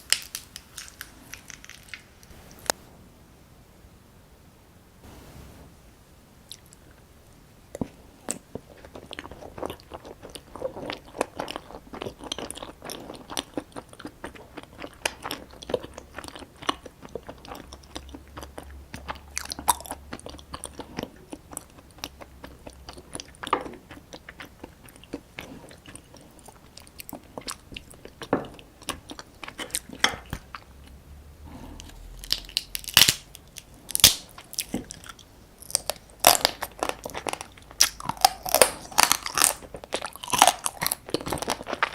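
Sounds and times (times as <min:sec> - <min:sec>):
crab shell crunching: 0:00.0 - 0:02.8, 0:31.8 - 0:41.9.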